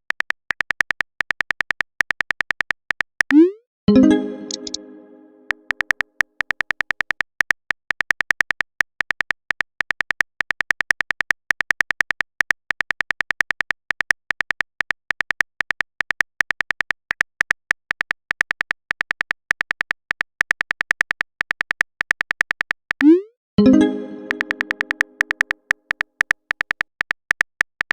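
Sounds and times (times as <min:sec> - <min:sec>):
chime: 0:03.9 - 0:05.7, 0:23.6 - 0:25.3
rapid keyboard tap clicks: 0:24.3 - 0:27.9.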